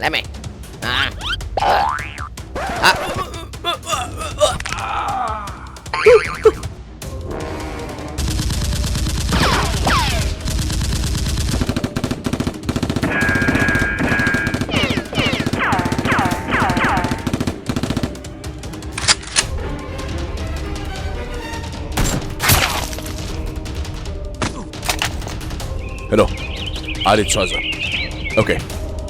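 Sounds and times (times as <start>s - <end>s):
background music: 0.0s - 29.0s
rapid automatic gunfire: 8.2s - 18.2s.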